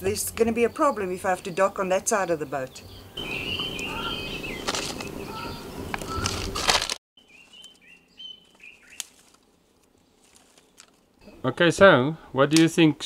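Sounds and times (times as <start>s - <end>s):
small birds chirping: 0.0s - 6.6s, 7.2s - 11.6s
hands rustling kindling: 5.9s - 11.2s.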